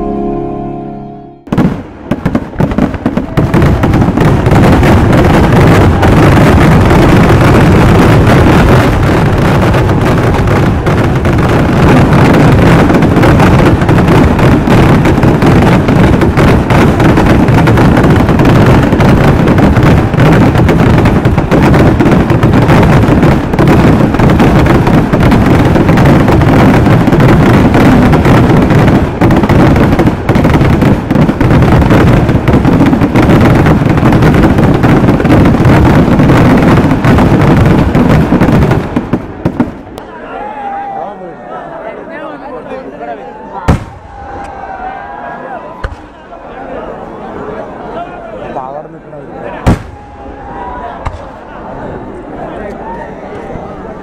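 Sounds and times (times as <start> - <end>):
firecrackers banging in barrage: 1.4 - 40.0, 43.7 - 44.7, 45.8 - 46.2, 49.6 - 50.4.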